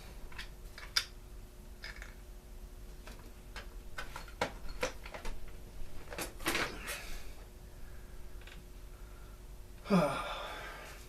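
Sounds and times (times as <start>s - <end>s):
clicks of parts being handled: 0.3s - 1.2s.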